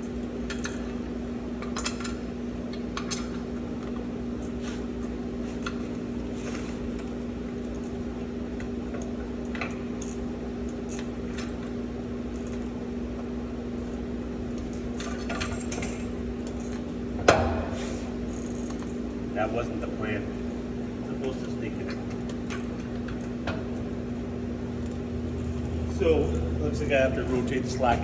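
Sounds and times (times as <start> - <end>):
low hum: 19.8 - 28.0.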